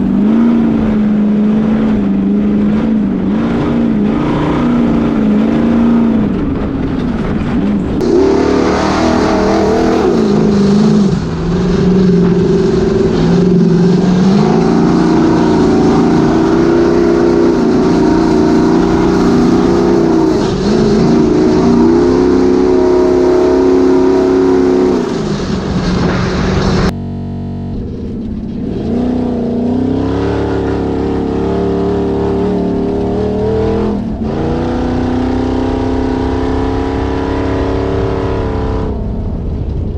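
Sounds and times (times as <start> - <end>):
race car engine revving: 0.0 - 39.8.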